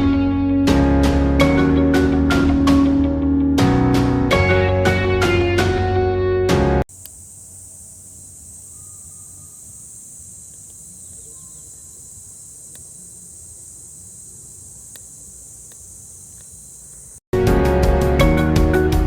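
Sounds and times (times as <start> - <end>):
insects buzzing: 6.9 - 17.3.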